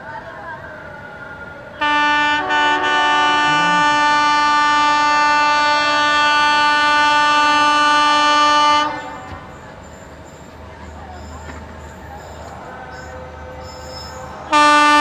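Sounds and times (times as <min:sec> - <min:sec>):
locomotive air horn blast: 0:01.8 - 0:09.5, 0:14.5 - 0:15.0.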